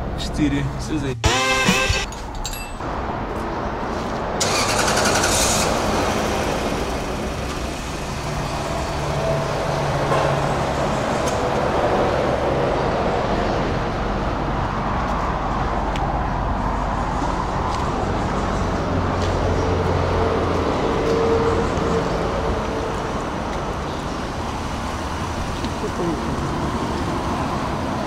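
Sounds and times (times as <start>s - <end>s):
engine cranking: 4.4s - 5.9s.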